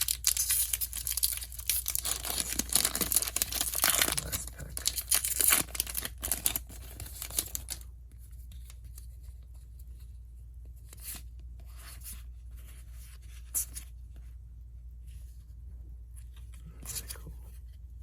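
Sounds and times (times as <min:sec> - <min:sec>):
foil wrapper tearing and crinkling: 0:00.0 - 0:07.8
soft rustles of handling: 0:00.0 - 0:18.0.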